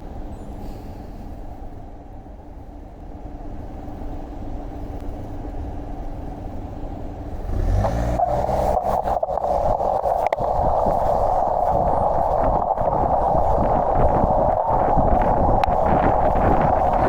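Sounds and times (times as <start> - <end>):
steady rushing noise: 1.1 - 17.0
vehicle engine revving: 7.3 - 12.0
clicks: 10.2 - 10.5.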